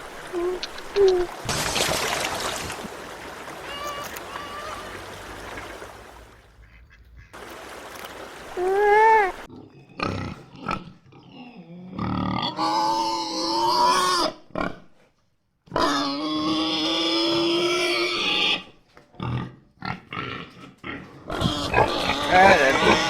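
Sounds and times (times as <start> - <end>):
background noise: 0.0 - 23.0
animal calls: 3.6 - 5.2.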